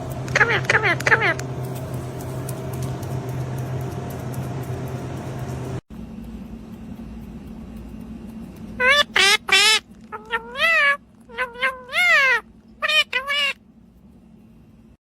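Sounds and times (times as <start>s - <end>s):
parrot meow-like calls: 8.8s - 13.6s.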